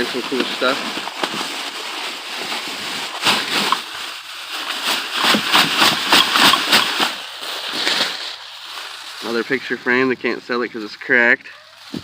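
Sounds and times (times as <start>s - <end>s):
plastic bags rustling: 0.0s - 12.0s
items knocking and clattering: 3.2s - 4.0s, 5.1s - 7.2s.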